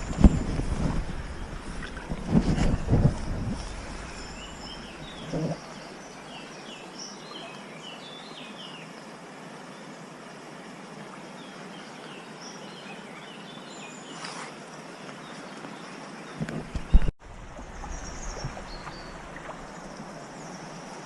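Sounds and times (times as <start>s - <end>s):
small birds chirping: 2.7s - 8.8s, 13.4s - 21.0s.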